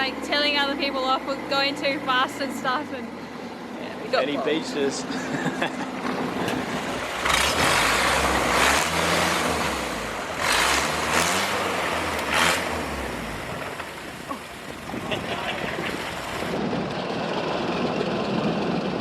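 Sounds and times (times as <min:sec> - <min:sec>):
boat engine revving hard: 0:05.0 - 0:16.6
loud rushing noise: 0:06.2 - 0:12.9.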